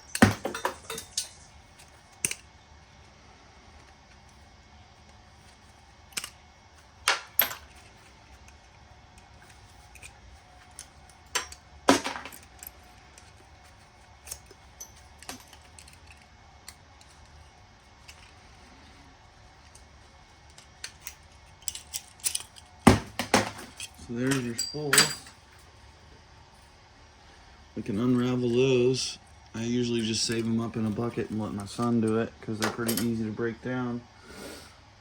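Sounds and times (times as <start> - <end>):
metal parts clinking and knocking: 0.0 - 2.5, 5.4 - 6.4, 7.0 - 17.3, 18.0 - 18.4, 20.5 - 25.4, 30.0 - 33.2.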